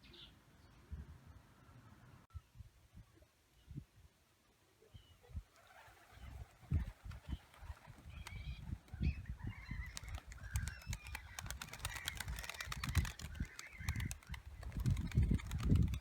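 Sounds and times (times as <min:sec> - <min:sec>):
birds calling: 0:04.9 - 0:16.0.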